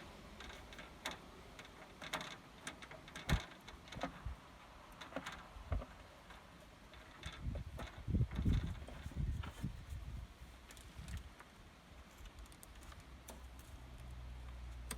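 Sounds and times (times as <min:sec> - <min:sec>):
clicks and knocks of tools handled: 0:00.4 - 0:09.6.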